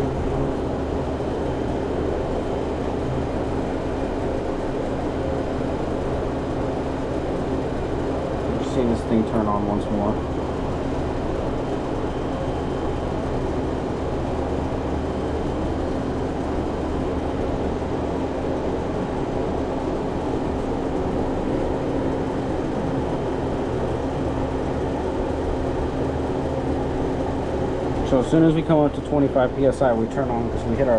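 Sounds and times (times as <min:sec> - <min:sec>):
refrigerator compressor humming: 0:00.0 - 0:30.9.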